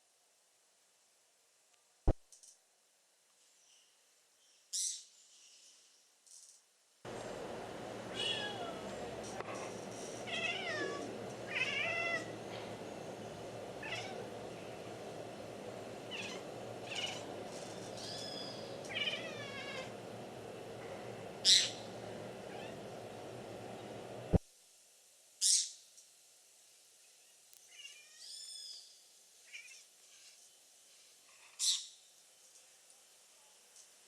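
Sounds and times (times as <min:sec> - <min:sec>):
cat meowing: 0:08.2 - 0:08.8, 0:10.3 - 0:12.3, 0:13.8 - 0:14.2, 0:18.9 - 0:19.9
birds chirping: 0:12.2 - 0:19.5.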